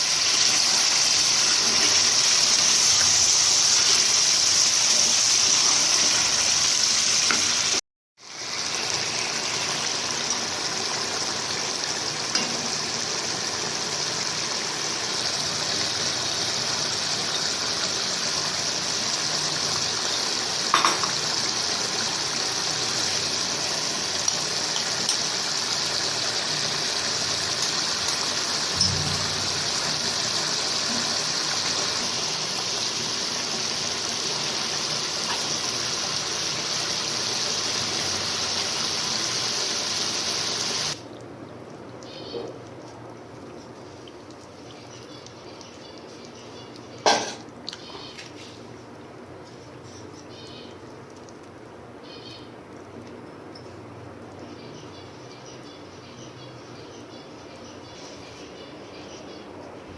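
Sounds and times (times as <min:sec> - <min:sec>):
meat sizzling in a pan: 0:00.0 - 0:41.0.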